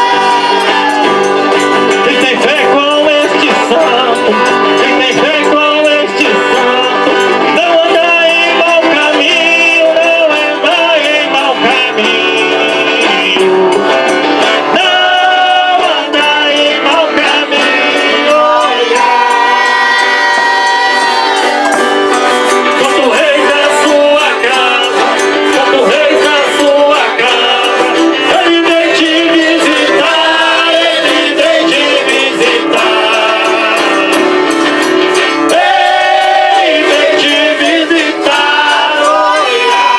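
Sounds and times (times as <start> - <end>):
guitar: 0.0 - 39.9
men singing: 0.0 - 39.9
tambourine beat: 0.0 - 39.9
button accordion: 1.2 - 39.9.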